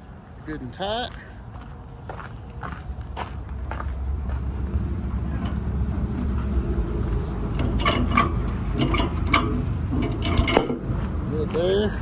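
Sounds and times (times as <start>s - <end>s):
sharp knocks and clanks: 7.1s - 11.2s.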